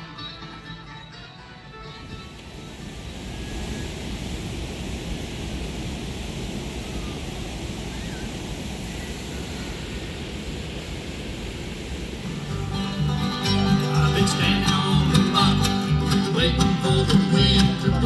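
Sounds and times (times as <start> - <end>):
guitar music: 0.0 - 2.4, 12.5 - 18.0
steady rushing noise: 0.0 - 18.0
low rumble: 2.7 - 18.0.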